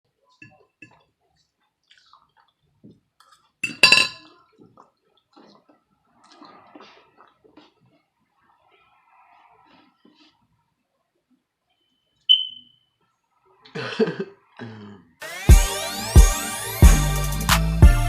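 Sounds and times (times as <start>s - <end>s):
cutlery and dishes clinking: 3.2s - 4.4s.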